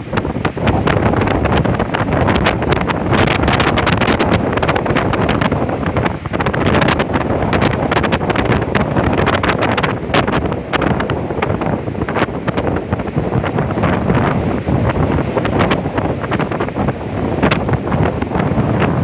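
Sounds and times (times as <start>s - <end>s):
gale wind on microphone: 0.0s - 19.0s
stormy sea: 0.0s - 19.0s.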